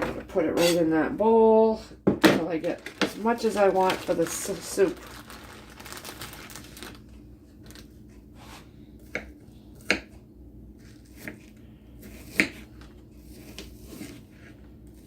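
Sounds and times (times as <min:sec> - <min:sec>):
knife chopping chicken: 0:12.0 - 0:12.7.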